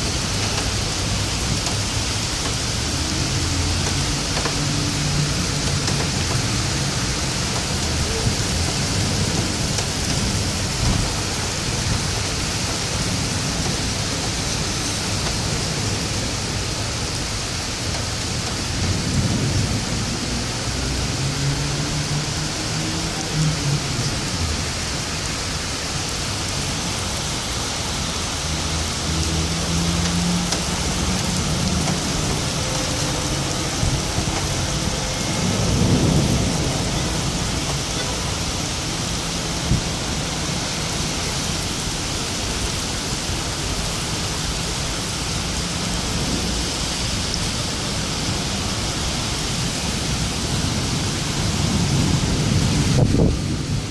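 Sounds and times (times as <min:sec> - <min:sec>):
steady rain falling: 0:00.0 - 0:53.9
low rolling thunder: 0:28.4 - 0:40.5, 0:50.1 - 0:53.9.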